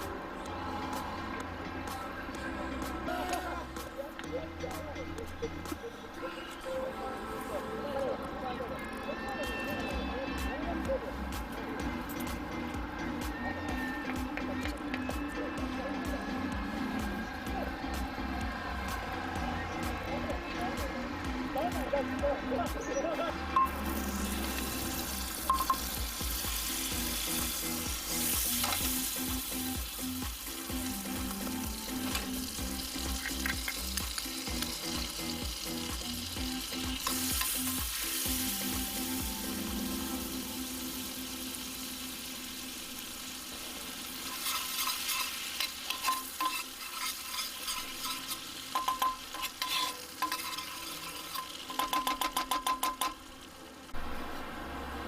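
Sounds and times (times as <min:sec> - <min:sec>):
food sizzling in a pan: 0:23.1 - 0:54.0.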